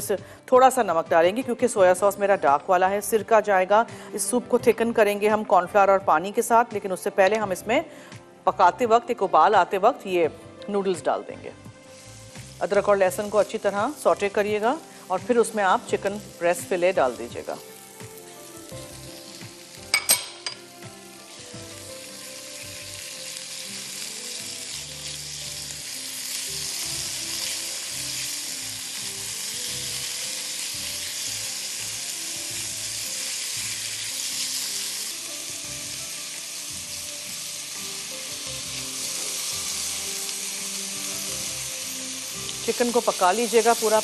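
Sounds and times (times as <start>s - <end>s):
chicken sizzling in wok: 11.8s - 44.0s.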